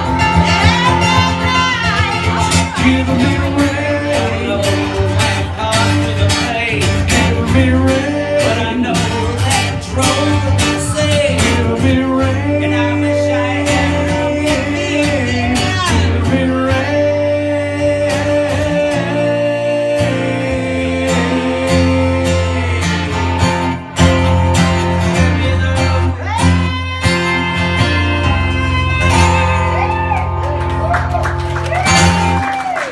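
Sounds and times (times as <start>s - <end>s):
country-blues band with guitar: 0.0s - 32.9s.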